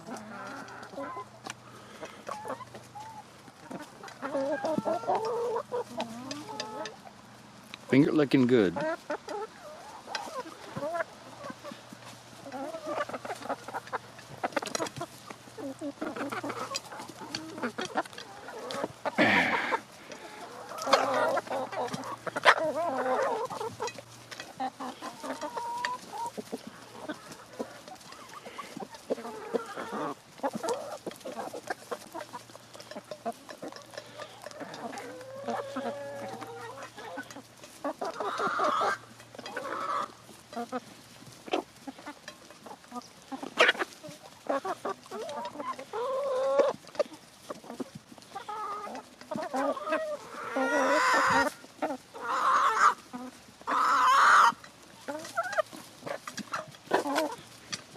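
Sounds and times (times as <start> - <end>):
chicken squawk: 0.0 - 7.0, 15.6 - 23.9, 33.6 - 40.2, 48.4 - 57.4
beaks pecking food: 0.0 - 57.9
chickens clucking: 0.0 - 57.9.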